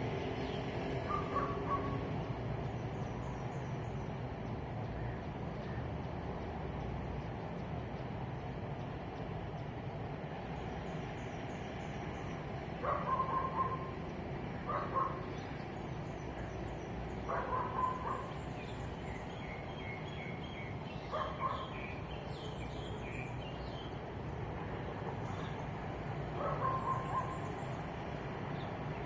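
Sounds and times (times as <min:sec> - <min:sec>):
distant traffic hum: 0:00.0 - 0:29.0
birds chirping: 0:10.4 - 0:29.0.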